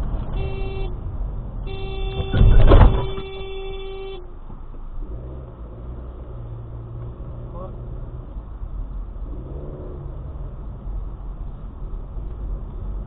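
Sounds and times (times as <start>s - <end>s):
steady road noise: 0.0s - 13.0s
car horn honking: 0.3s - 4.4s
loud low thud: 2.0s - 3.4s.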